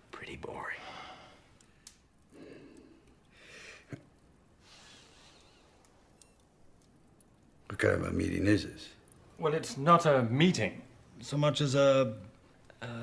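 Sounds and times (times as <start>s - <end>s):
faint breaths: 0.5s - 4.0s, 4.6s - 6.1s.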